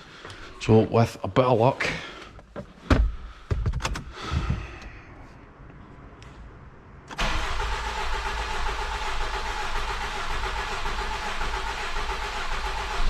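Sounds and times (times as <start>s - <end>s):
diesel engine starting and idling: 7.0s - 13.0s.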